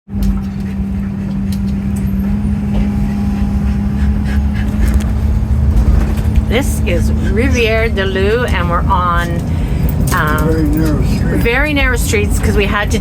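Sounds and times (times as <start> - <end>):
engine and road rumble: 0.1 - 13.0.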